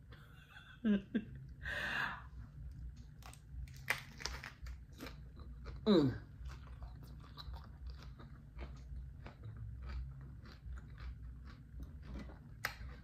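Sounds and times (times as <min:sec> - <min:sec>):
chewing lettuce with crunches: 0:03.2 - 0:13.0.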